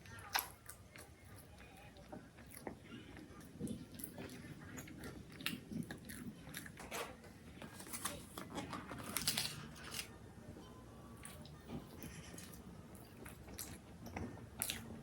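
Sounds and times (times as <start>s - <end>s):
person chewing crunchy food: 0.0s - 6.9s, 11.2s - 15.0s.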